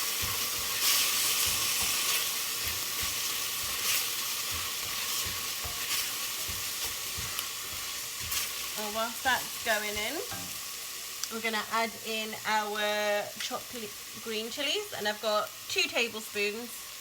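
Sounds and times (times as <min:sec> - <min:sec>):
onions sizzling in a pan: 0:00.0 - 0:17.0
spoon knocking against pan: 0:00.1 - 0:08.6.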